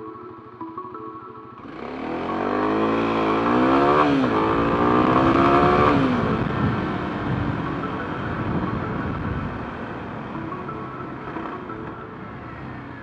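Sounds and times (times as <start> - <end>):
vehicle engine accelerating: 1.6 - 13.0.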